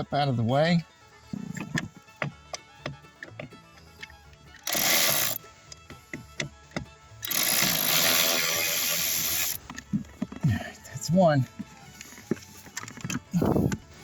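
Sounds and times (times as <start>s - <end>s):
light background music: 0.0s - 14.0s
power ratchet running: 4.6s - 5.4s, 7.2s - 9.6s.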